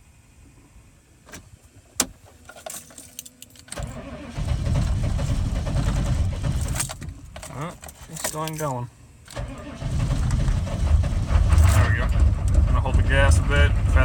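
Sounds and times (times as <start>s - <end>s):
starter cranking diesel engine: 3.8s - 6.9s, 9.3s - 14.0s.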